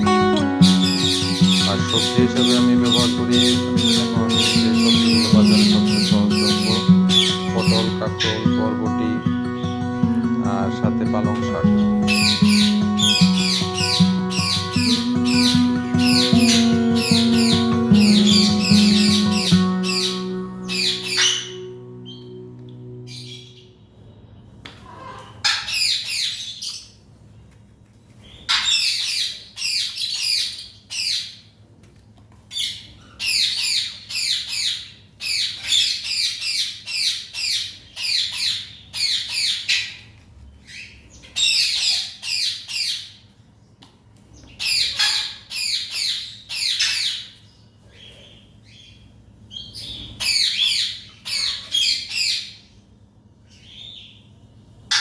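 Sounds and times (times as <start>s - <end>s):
parrots squawking: 0.0s - 23.7s, 24.8s - 26.9s, 28.3s - 31.4s, 32.5s - 43.2s, 44.5s - 52.7s.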